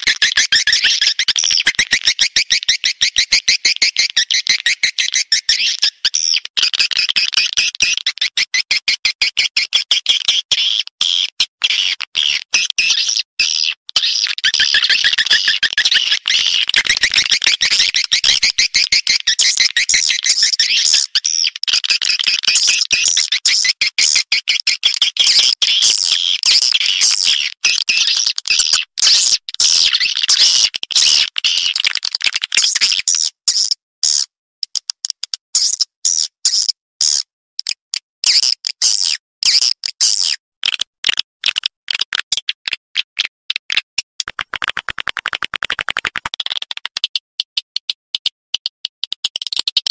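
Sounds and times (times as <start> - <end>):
rapid clicks: 44.2 - 47.0.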